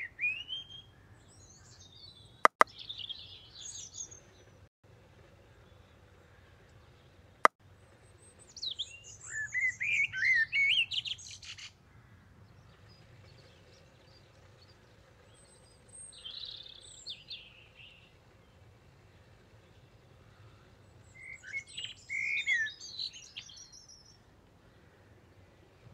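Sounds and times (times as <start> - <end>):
birds chirping: 0.0 - 4.6, 5.4 - 25.9.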